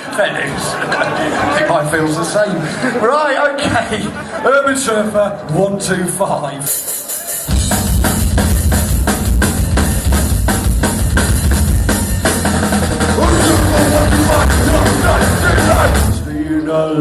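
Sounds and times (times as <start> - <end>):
fast bass drum and snare hits: 6.7 - 16.3
metal band playing: 6.7 - 16.5.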